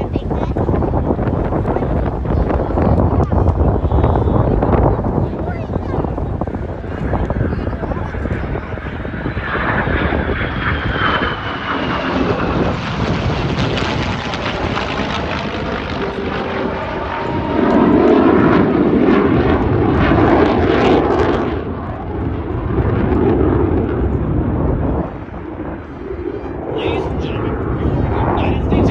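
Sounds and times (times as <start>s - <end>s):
jet engines roaring: 0.0s - 28.9s
falling jet whine: 6.1s - 28.9s.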